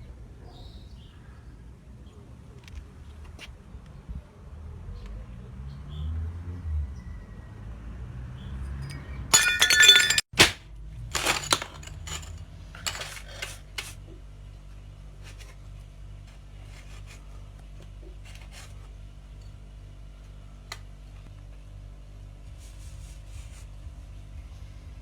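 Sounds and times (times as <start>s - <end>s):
pieces clattering: 8.8s - 13.9s
glass crashing and breaking: 9.3s - 12.4s.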